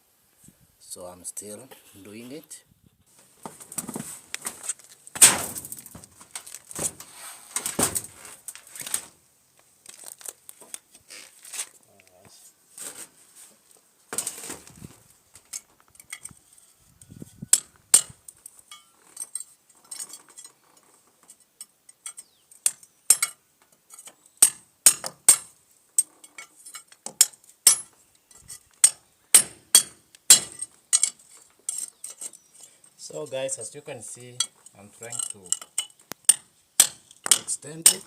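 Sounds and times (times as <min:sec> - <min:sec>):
hammer striking steel chisel: 0:28.8 - 0:31.2, 0:35.2 - 0:38.0.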